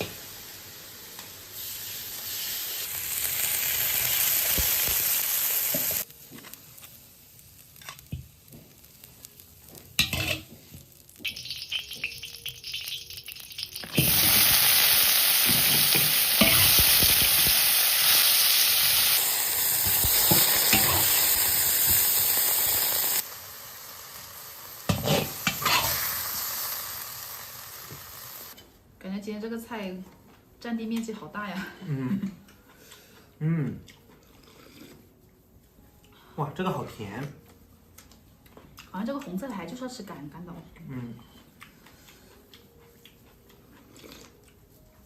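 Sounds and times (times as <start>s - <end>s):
food sizzling in a pan: 0.0s - 28.6s.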